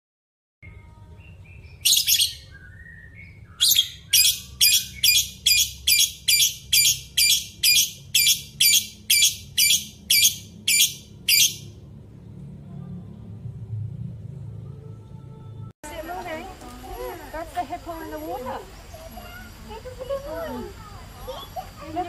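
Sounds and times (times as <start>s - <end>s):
bird calling harsh high notes: 1.8s - 11.8s
low steady rumble: 6.6s - 22.0s.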